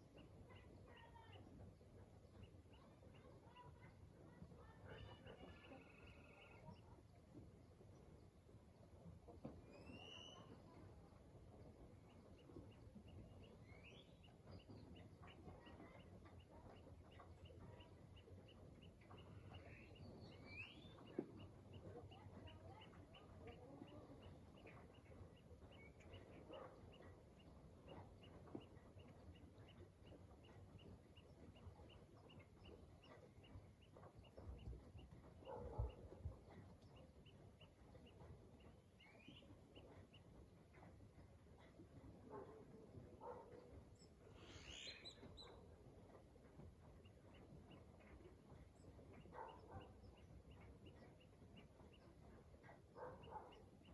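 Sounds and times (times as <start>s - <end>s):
bird chirps: 4.6s - 7.0s, 9.4s - 11.0s, 11.6s - 40.8s, 43.2s - 45.8s, 47.0s - 53.9s.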